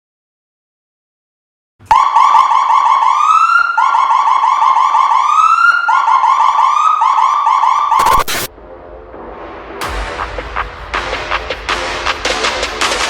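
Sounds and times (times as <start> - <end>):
fire truck siren warbling: 1.9 - 8.3
siren rising whoops: 1.9 - 8.5.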